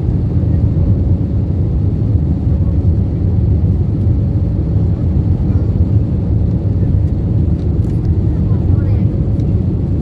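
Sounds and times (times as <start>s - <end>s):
jet engines and rushing air: 0.0s - 10.0s.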